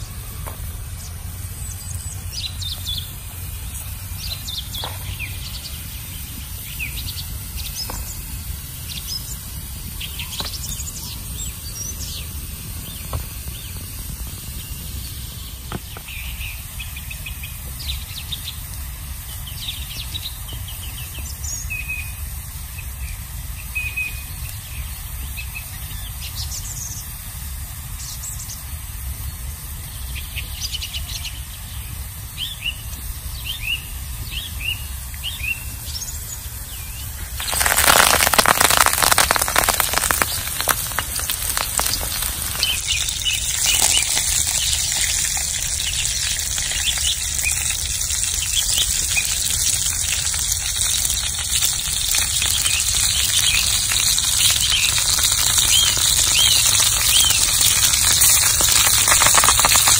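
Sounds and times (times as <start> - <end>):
wild birds chirping and trilling: 29.9 - 58.0.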